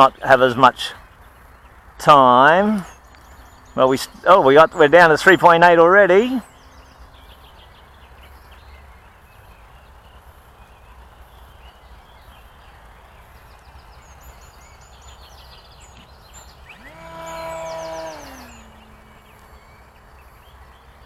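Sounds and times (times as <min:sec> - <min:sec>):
birds chirping: 0:00.0 - 0:21.0
model plane motor whining: 0:16.5 - 0:20.6.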